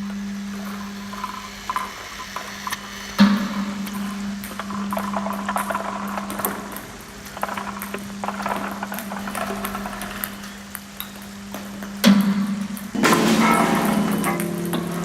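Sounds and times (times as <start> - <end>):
low drone: 13.0 - 15.0.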